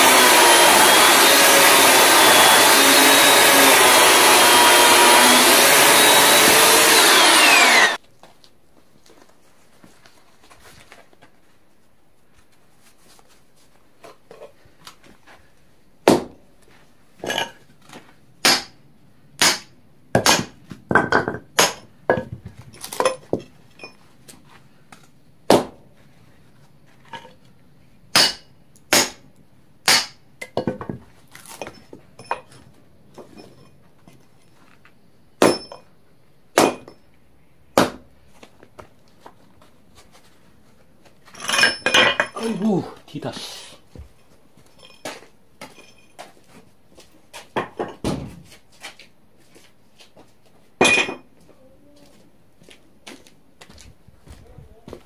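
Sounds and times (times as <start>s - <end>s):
sharp knocks of hard objects: 16.1s - 16.4s, 18.4s - 18.8s, 19.4s - 22.4s, 25.5s - 25.8s, 28.1s - 29.2s, 29.8s - 31.0s, 36.6s - 37.0s, 37.8s - 38.1s.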